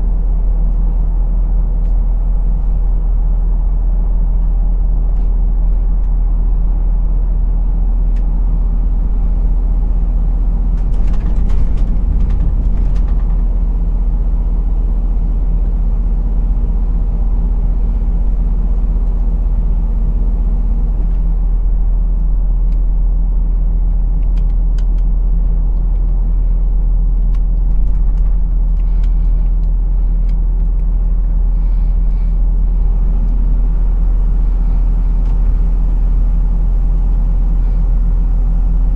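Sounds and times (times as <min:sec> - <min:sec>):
truck engine droning: 0:00.0 - 0:38.9
light clicks and rattles: 0:10.7 - 0:13.6, 0:27.1 - 0:31.1.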